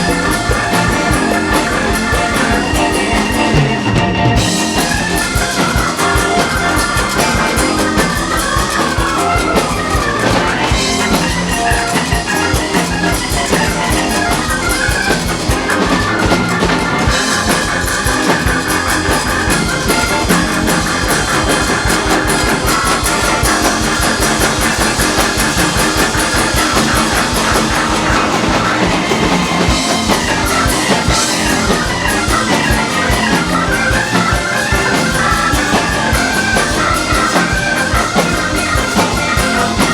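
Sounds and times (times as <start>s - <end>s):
drum kit groove: 0.0s - 39.9s
electric guitar: 0.0s - 39.9s.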